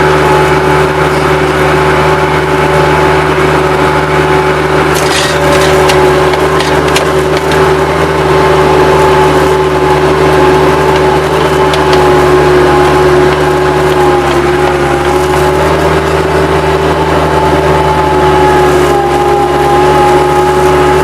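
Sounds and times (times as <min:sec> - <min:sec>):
skid-steer loader diesel engine running: 0:00.0 - 0:21.0.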